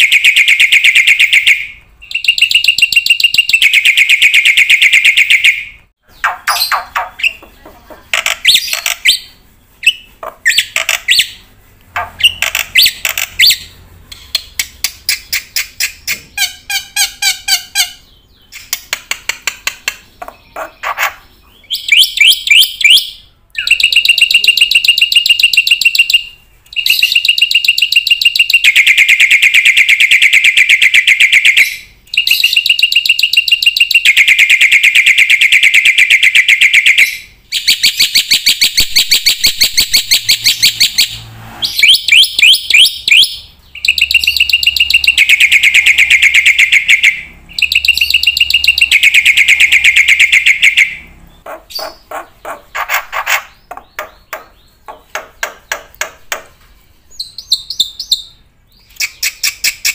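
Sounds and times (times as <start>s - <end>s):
bird singing fast trills: 0.0s - 7.5s, 8.2s - 18.9s, 19.9s - 56.4s, 57.1s - 59.9s.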